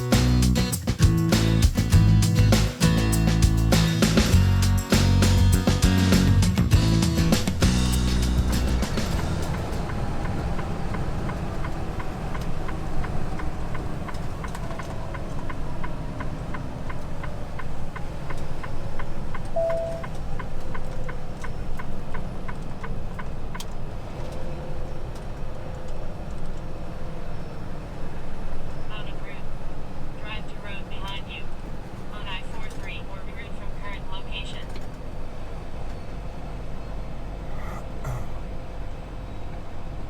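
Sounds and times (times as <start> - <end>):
truck engine and road rumble: 0.0 - 40.0
short beep: 19.6 - 20.1.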